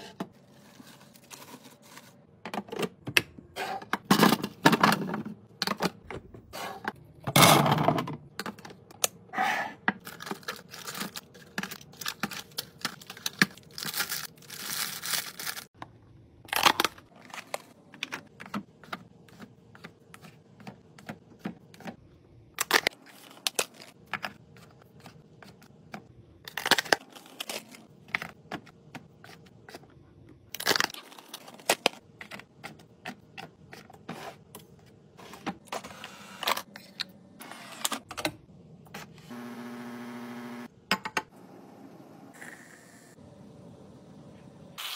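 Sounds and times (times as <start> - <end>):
wrappers tearing and crinkling: 10.1 - 15.7.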